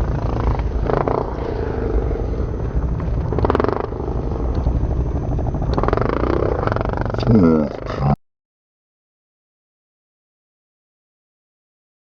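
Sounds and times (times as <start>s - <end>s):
dirt bike engine rumbling: 0.0s - 8.2s.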